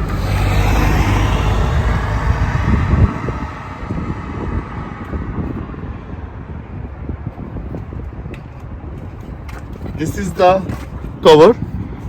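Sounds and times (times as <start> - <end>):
low vehicle engine rumble: 0.0 - 12.0
wind on microphone: 0.0 - 12.0.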